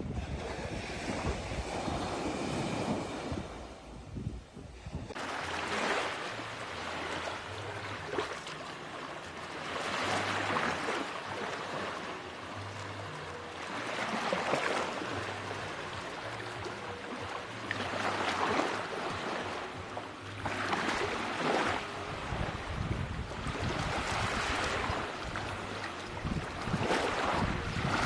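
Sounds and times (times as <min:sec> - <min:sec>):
sea waves washing onto beach: 0:00.0 - 0:04.0, 0:05.1 - 0:13.0, 0:13.6 - 0:28.0.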